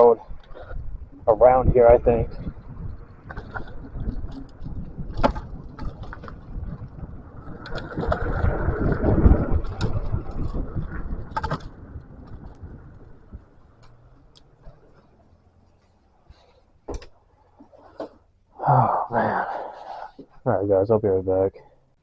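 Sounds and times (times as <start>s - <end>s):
scooter rumbling over rough road: 0.1s - 18.3s.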